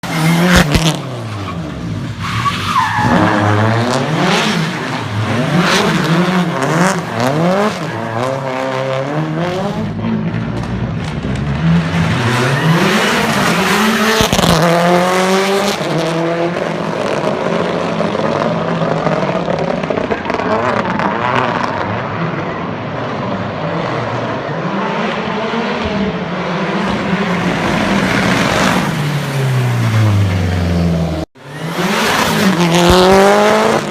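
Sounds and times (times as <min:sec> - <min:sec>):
tyres skidding: 0:00.0 - 0:33.9
car engine revving: 0:23.1 - 0:33.9.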